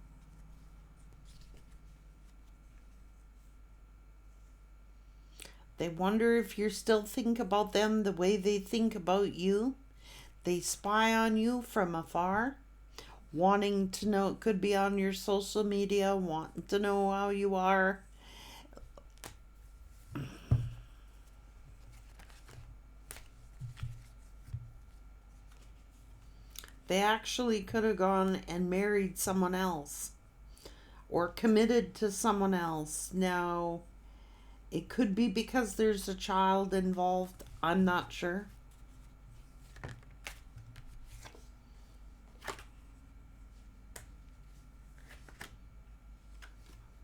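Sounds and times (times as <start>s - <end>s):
low steady hum: 0.0s - 47.0s
cards rustling: 21.2s - 26.8s, 38.6s - 42.8s, 43.6s - 45.6s, 46.2s - 47.0s
cards tapping: 21.9s - 24.8s, 45.0s - 45.5s.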